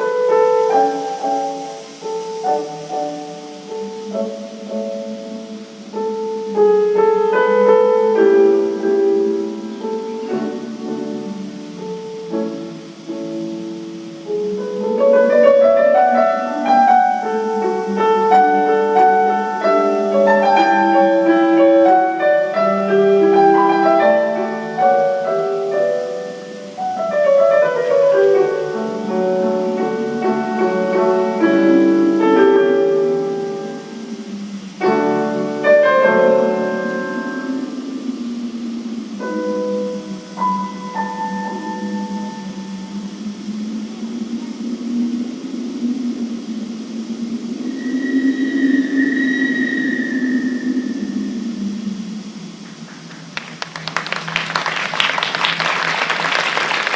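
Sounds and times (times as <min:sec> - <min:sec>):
piano music: 0:00.0 - 0:56.9.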